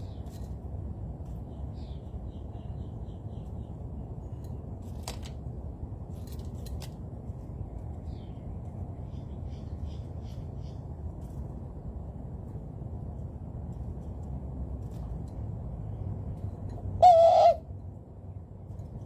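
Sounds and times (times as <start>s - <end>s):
small birds chirping: 7.5s - 10.9s.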